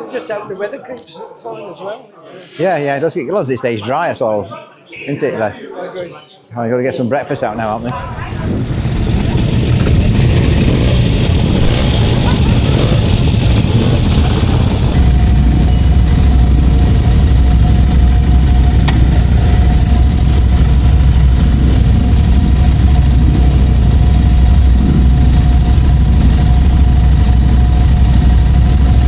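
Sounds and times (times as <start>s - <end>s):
engine idling: 7.9s - 29.0s.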